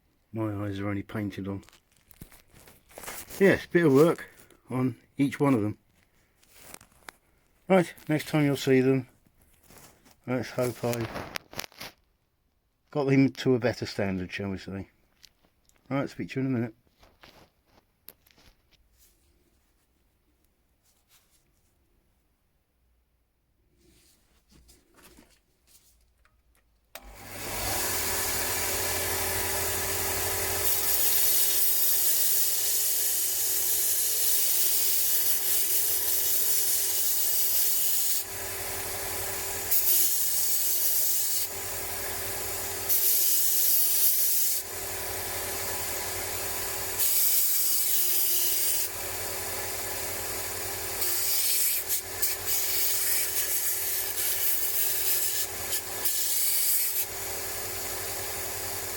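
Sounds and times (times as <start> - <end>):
power tool motor running: 27.0 - 58.9.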